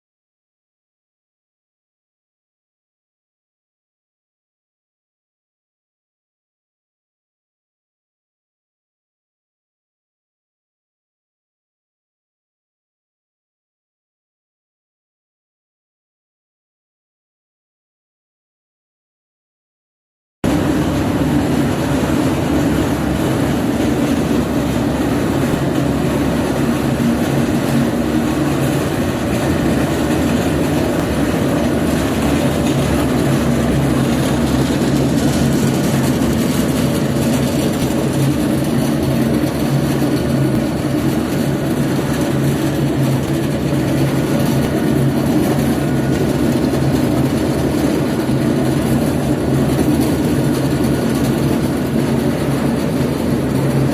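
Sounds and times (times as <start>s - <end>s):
grinder mechanical din: 20.4s - 53.9s
low motor hum: 20.4s - 53.9s.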